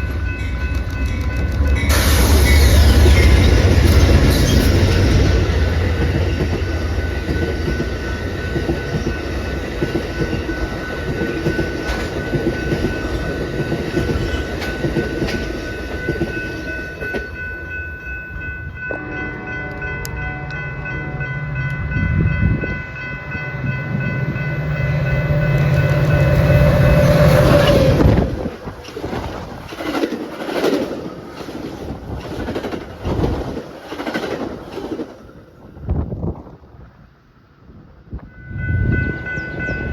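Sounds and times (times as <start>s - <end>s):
train wheels clattering over rails: 0.0s - 17.4s, 27.4s - 35.3s
steady high tones: 0.0s - 28.8s.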